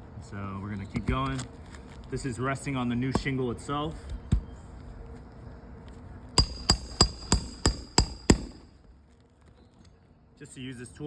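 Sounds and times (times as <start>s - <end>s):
hammer striking metal tool: 6.4s - 8.7s.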